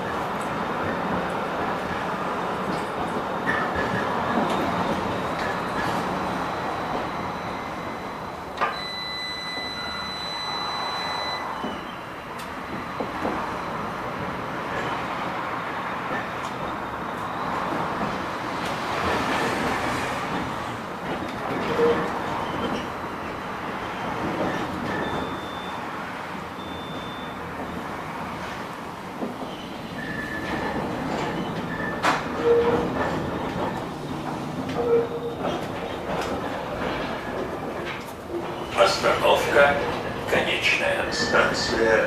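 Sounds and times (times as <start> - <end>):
tram wheels knocking on rail joints: 12.6 - 15.0, 17.6 - 23.0, 29.1 - 42.0.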